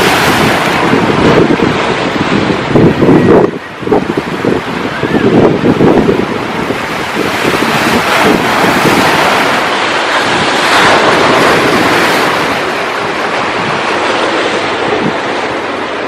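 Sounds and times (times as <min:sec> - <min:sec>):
ocean surf washing ashore: 0:00.0 - 0:16.0
wind buffeting microphone: 0:00.0 - 0:16.0.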